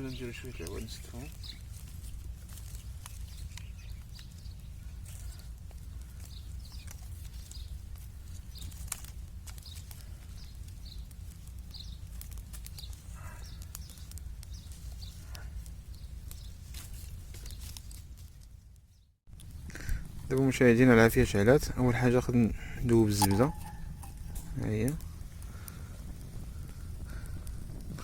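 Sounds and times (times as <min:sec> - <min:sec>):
bird chirps: 0:00.0 - 0:01.8, 0:02.7 - 0:05.4, 0:22.9 - 0:25.2
stick fire crackling: 0:00.0 - 0:28.0
wind rumble on microphone: 0:19.4 - 0:28.0
farm animal call: 0:23.0 - 0:24.6.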